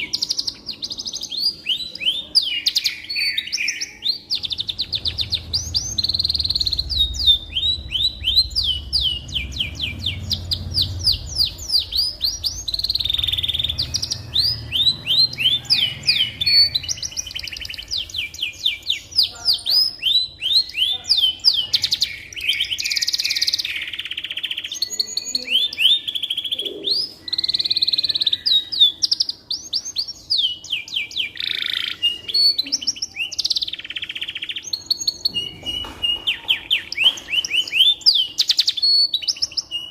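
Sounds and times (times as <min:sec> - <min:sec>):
canary singing: 0:00.0 - 0:39.9
low rumble: 0:04.4 - 0:18.3.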